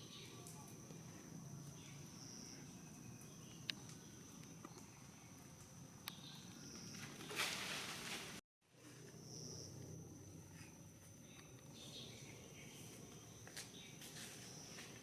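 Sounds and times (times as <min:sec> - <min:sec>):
brief rustle: 0:06.9 - 0:08.4.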